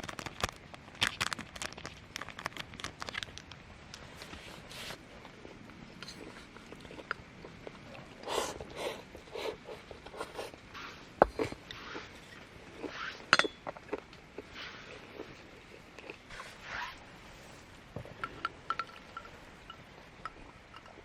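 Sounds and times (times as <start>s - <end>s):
light clinks: 13.3s - 13.6s, 18.2s - 21.0s.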